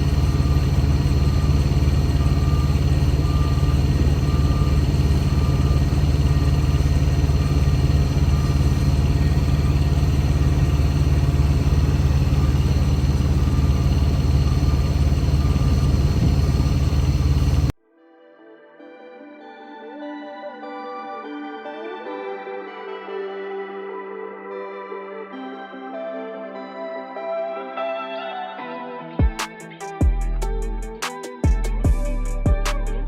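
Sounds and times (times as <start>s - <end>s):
diesel engine idling: 0.0s - 17.7s
faint high beeps: 0.0s - 17.7s.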